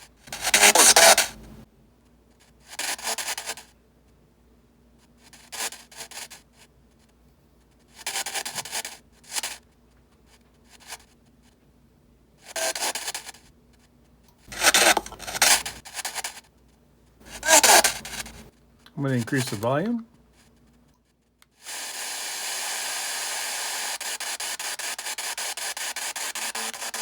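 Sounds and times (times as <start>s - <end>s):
radio static bursts: 0.3s - 1.6s, 14.5s - 15.8s, 17.3s - 18.5s.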